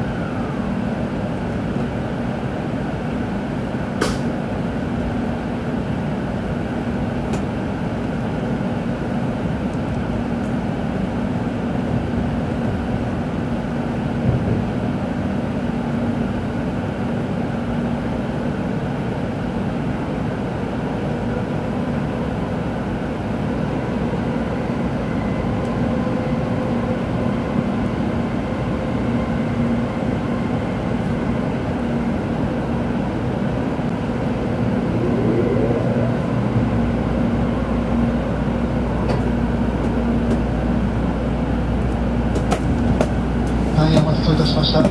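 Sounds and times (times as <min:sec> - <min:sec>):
constant hum: 0:32.5 - 0:44.9
short rising whine: 0:33.9 - 0:38.5
train wheels rumbling: 0:33.9 - 0:44.9.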